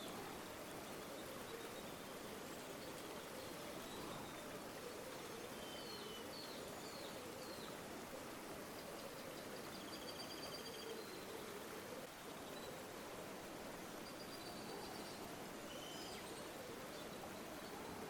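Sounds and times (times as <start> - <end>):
river water flowing: 0.0 - 18.0
faint bird chirps: 2.8 - 7.8, 14.0 - 18.0.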